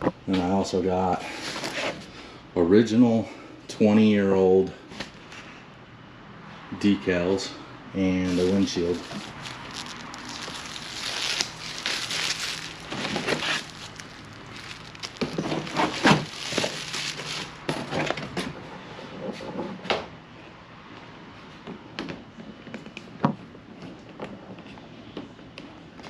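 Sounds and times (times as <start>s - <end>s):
packaging rustling and crinkling: 8.2s - 18.2s.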